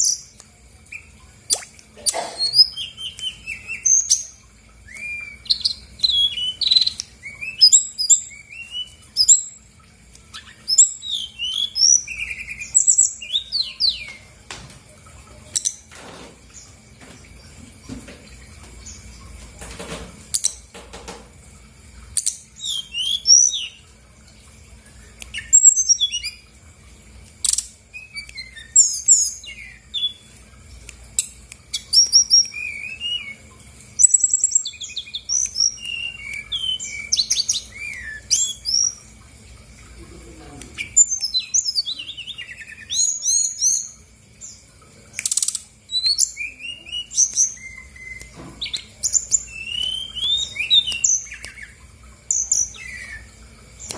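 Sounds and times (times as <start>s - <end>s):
bird singing chirps and trills: 0.0s - 14.4s, 22.1s - 24.0s, 24.9s - 26.6s, 27.4s - 30.4s, 31.2s - 39.1s, 40.2s - 53.9s.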